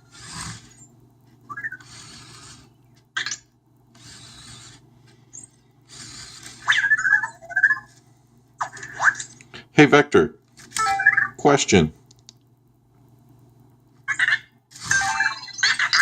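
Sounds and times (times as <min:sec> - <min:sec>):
small motors whirring: 0:00.0 - 0:08.0, 0:14.7 - 0:16.0.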